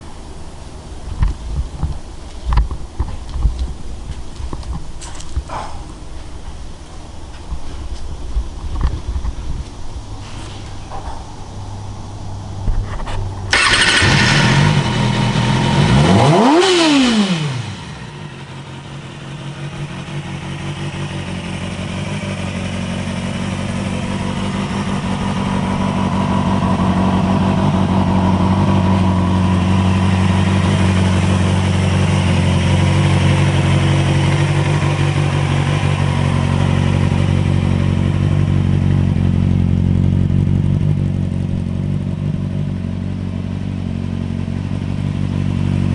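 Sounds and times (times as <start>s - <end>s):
motorcycle engine revving and idling: 10.8s - 45.9s.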